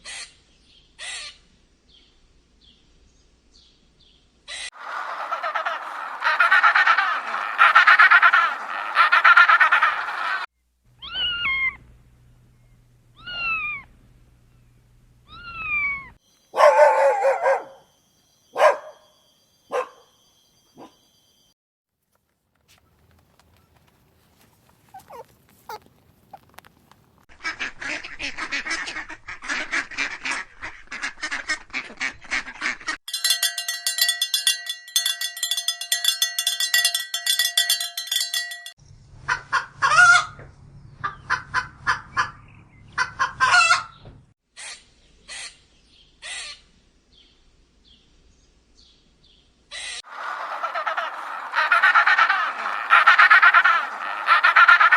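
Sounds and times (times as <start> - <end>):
flock of fowl chattering: 4.5 - 10.5, 24.4 - 26.4, 49.8 - 54.9
fowl honking and squawking: 4.5 - 10.5, 24.9 - 25.9, 43.0 - 43.9, 49.8 - 54.9.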